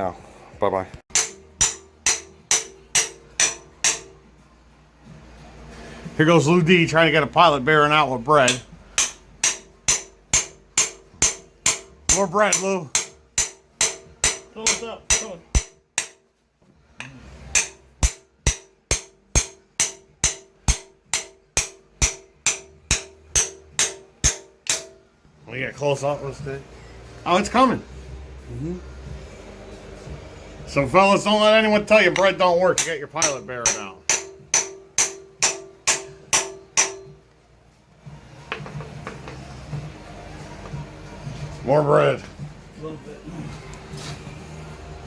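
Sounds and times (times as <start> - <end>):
hammer blows with metallic ring: 1.1 - 4.4, 8.4 - 16.4, 17.0 - 25.2, 30.0 - 37.4.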